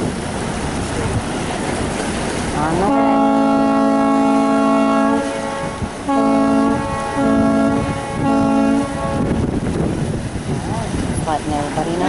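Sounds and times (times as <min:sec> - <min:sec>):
boat horn blasts: 0:02.6 - 0:09.5.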